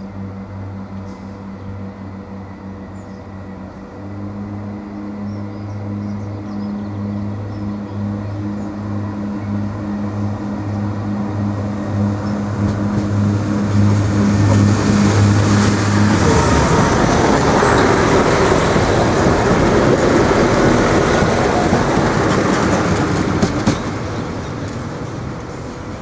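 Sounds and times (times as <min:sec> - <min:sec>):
faint high whine: 0:00.0 - 0:19.6
diesel train engine drone: 0:00.0 - 0:26.0
train wheels rolling on rails: 0:06.5 - 0:26.0.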